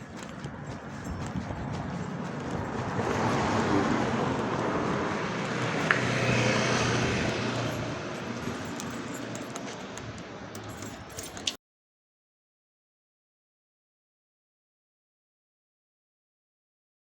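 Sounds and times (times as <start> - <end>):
vehicle passing by: 0.0 - 10.9.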